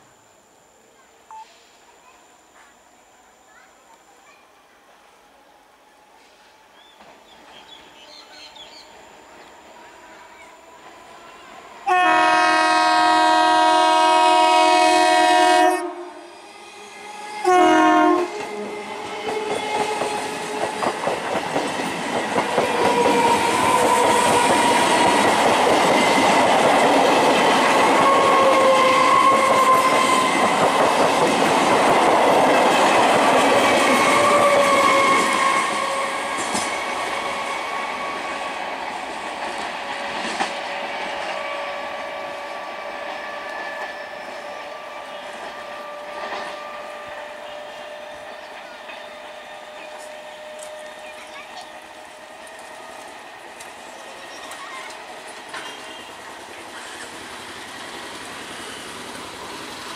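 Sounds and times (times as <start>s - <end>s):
train horn blasts: 11.8s - 16.2s, 17.4s - 18.5s
train wheels clattering over rail joints: 18.4s - 34.7s.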